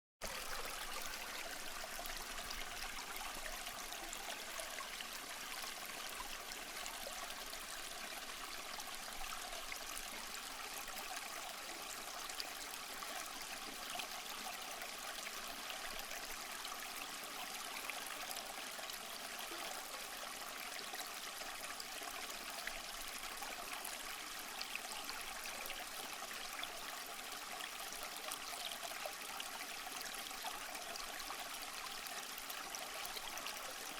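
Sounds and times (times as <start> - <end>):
small stream flowing: 0.2 - 33.9.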